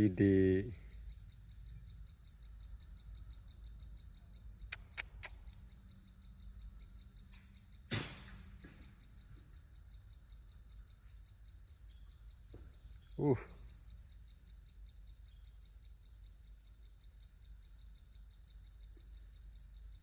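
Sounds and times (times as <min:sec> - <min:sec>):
faint outdoor ambience: 0:00.0 - 0:20.0
sharp clicks: 0:04.6 - 0:05.7.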